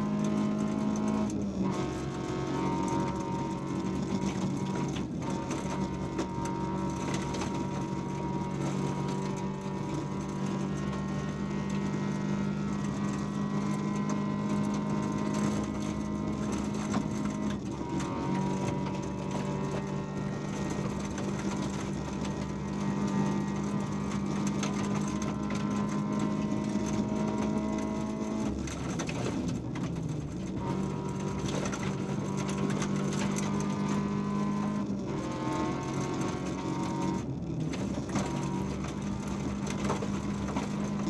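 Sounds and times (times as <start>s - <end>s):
car engine at high revs: 0.0s - 41.0s.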